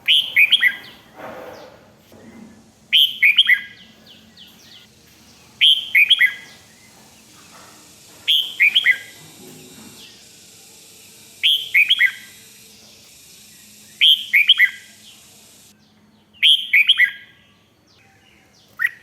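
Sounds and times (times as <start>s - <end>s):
bird singing falling notes: 0.0s - 1.7s, 2.9s - 10.4s.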